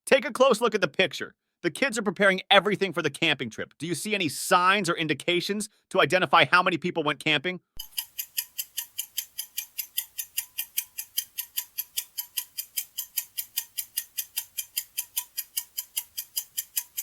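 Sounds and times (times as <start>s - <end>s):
fast clock ticking: 7.8s - 17.0s.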